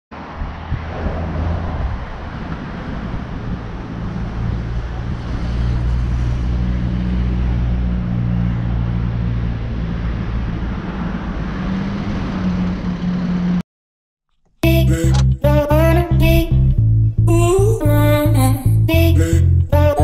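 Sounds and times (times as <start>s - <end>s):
outdoor street noise: 0.1s - 13.6s.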